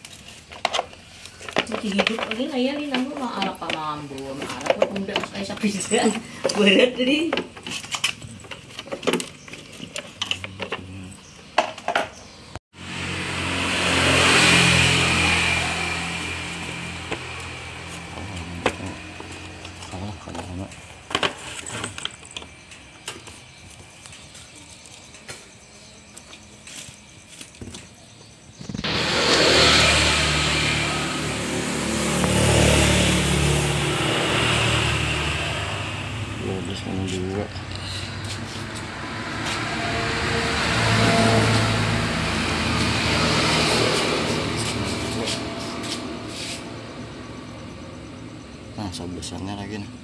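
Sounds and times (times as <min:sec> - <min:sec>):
parts clicking and knocking: 0:00.0 - 0:12.2, 0:17.0 - 0:28.0
motor vehicle passing by: 0:12.7 - 0:22.6, 0:28.5 - 0:49.0.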